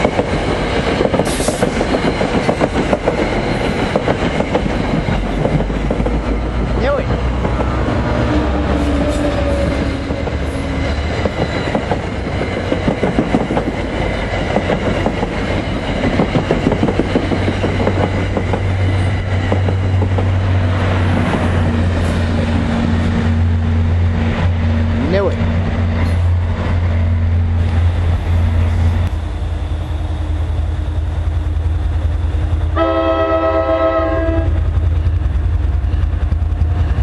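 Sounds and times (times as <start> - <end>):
train wheels clacking over rail joints: 0.0 - 23.1
diesel locomotive engine drone: 0.0 - 37.0.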